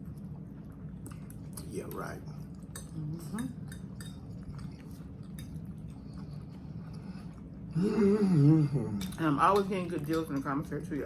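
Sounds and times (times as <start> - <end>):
person chewing: 0.0 - 9.2
steady low hum: 0.0 - 11.0
cutlery clicking on a plate: 2.7 - 4.7.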